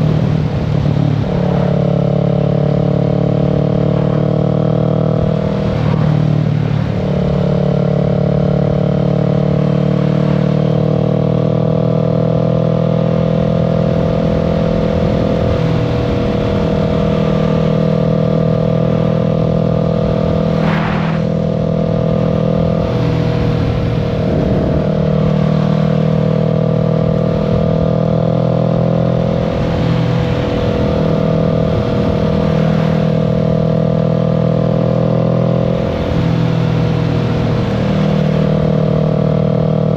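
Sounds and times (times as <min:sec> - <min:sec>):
motorcycle engine running: 0:00.0 - 0:39.9
short whoosh: 0:20.4 - 0:21.6.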